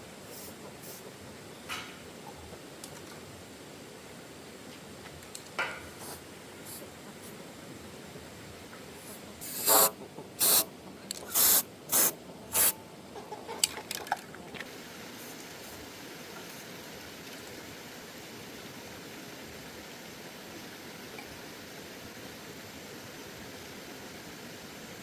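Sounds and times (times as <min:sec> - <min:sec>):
hissing spray bursts: 0:00.2 - 0:01.0, 0:06.0 - 0:07.4, 0:09.0 - 0:12.8, 0:14.7 - 0:16.8.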